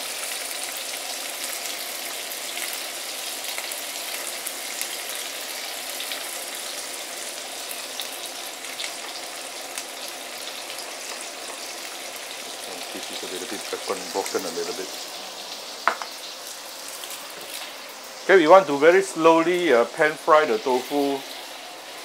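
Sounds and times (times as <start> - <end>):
tofu sizzling in hot oil: 0.0 - 22.0
oil popping and crackling: 0.2 - 17.8.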